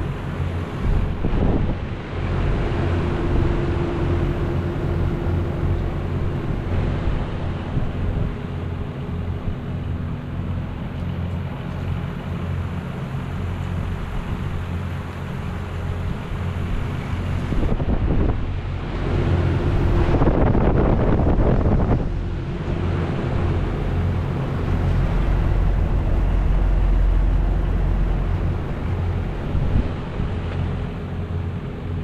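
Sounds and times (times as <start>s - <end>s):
loud rushing noise: 0.0s - 10.0s, 16.4s - 31.5s
heat pumps humming: 0.0s - 32.0s.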